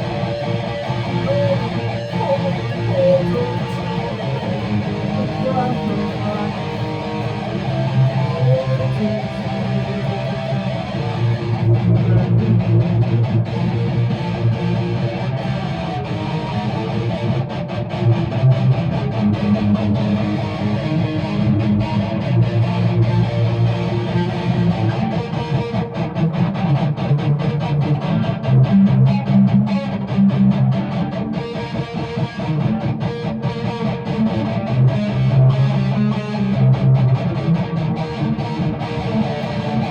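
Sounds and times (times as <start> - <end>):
guitar strumming chords: 0.0 - 39.9.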